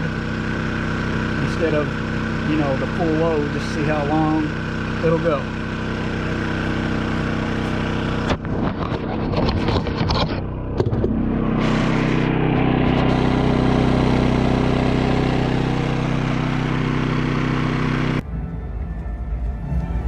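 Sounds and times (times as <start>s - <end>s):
generator engine running: 0.0s - 20.0s
clicking and knocking: 8.3s - 11.2s.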